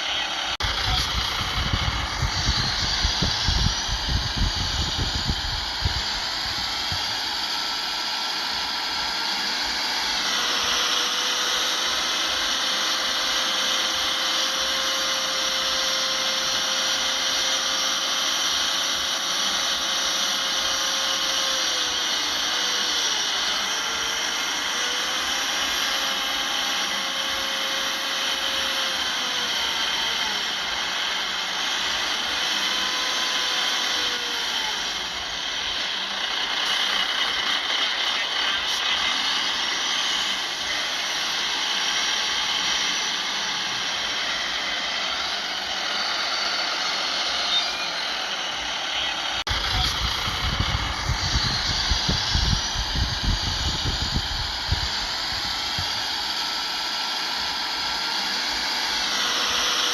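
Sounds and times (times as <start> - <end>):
diesel machinery engine: 0.0 - 59.9
high-pitched whine and hiss: 0.0 - 59.9
heavy low rumble: 0.6 - 6.7.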